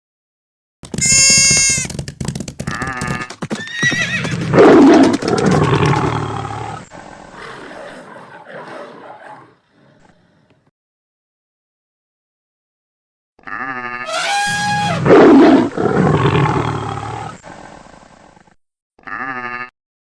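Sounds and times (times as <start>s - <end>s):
loud high animal call: 3.6s - 4.4s, 13.5s - 15.7s
low rough animal call: 13.4s - 17.8s
short animal calls: 13.5s - 15.1s.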